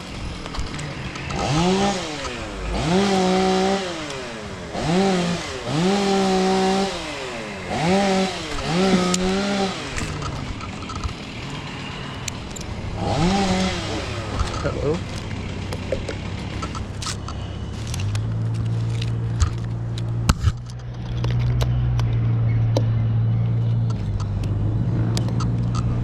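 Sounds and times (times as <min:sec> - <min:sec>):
chainsaw revving and idling: 0:00.0 - 0:20.4.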